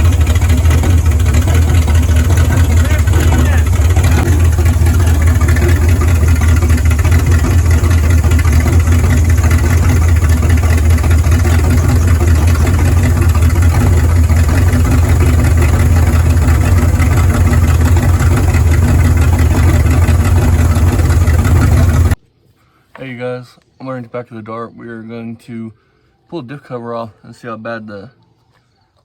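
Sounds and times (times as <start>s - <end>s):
car engine idling low rumble: 0.0s - 22.2s.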